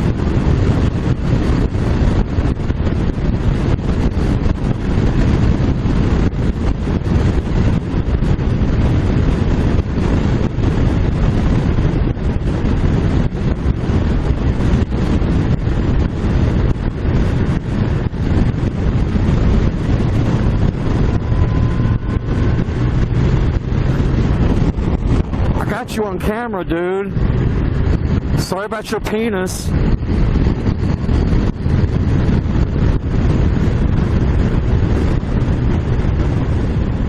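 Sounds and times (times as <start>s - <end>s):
motorcycle engine: 0.0s - 37.0s
road noise: 0.0s - 37.0s
wind buffeting microphone: 0.0s - 37.0s
faint rising whine: 16.8s - 32.4s.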